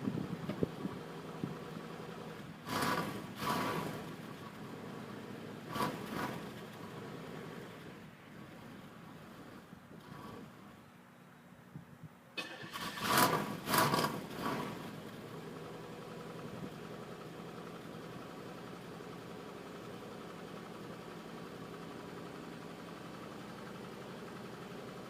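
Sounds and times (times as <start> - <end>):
car engine starting and idling: 0.0 - 11.2, 12.3 - 25.0.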